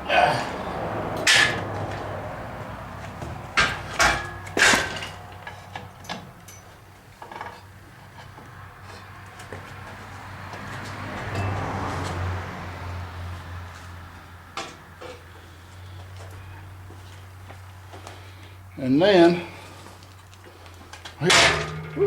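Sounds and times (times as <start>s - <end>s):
metal knocks and clanks: 1.1s - 2.2s, 3.0s - 8.4s, 21.2s - 22.0s.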